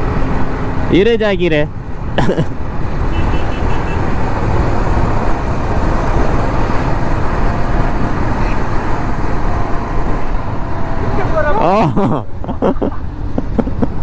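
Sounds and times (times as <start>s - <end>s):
road vehicle rumble: 0.0s - 14.0s.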